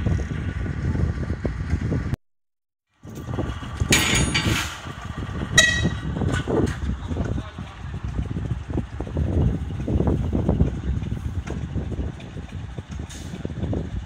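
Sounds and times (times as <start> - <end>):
train rumbling past: 3.0 - 14.0.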